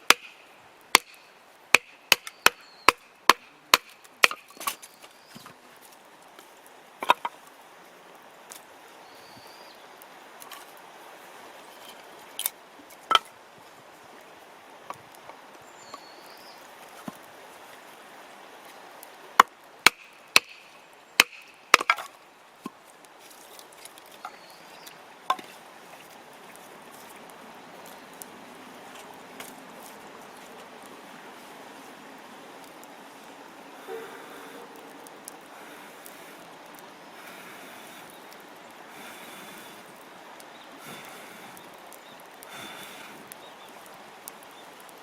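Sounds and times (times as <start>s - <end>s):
firewood cracking and knocking: 0.0s - 7.5s, 11.8s - 13.3s, 19.4s - 20.6s, 21.2s - 27.2s
faint steady background noise: 0.0s - 45.0s.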